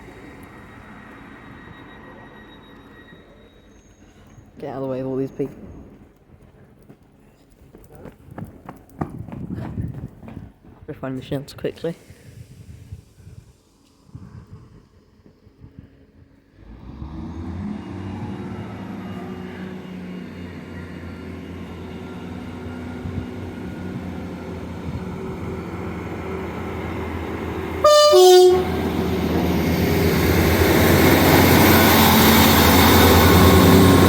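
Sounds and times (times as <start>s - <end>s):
passenger train running noise: 0.0s - 34.0s
two-tone train horn: 27.8s - 29.1s.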